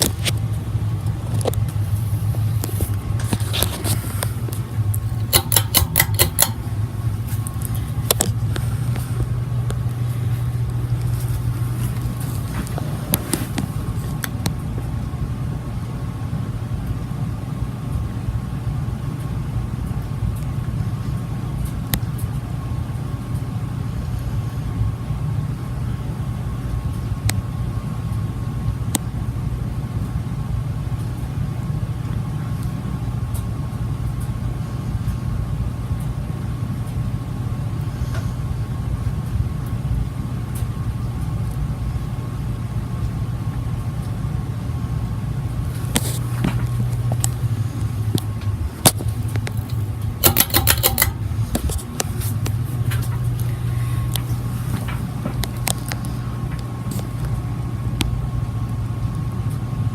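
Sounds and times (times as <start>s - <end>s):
ceiling fan humming: 0.0s - 59.9s
sharp clicks: 4.5s - 6.7s, 48.2s - 51.8s.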